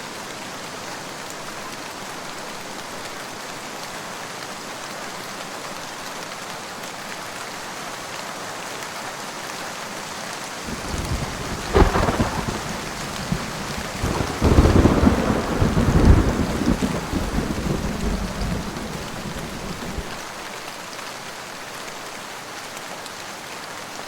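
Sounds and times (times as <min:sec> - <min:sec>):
steady rain falling: 0:00.0 - 0:24.0
thunder rumbling and cracking: 0:10.7 - 0:20.2.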